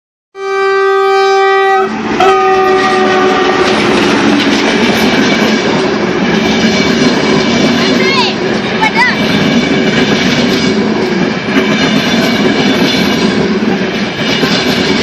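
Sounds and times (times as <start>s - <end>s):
train horn blasts: 0.4s - 4.3s
train running on rails: 0.4s - 15.0s.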